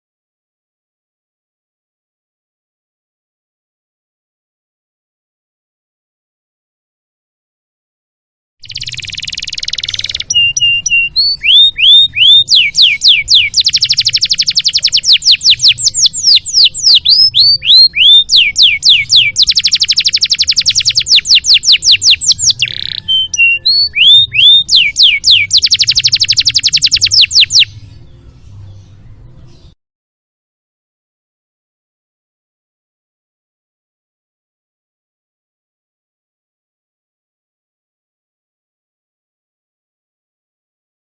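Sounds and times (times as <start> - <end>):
canary singing: 8.6 - 29.8.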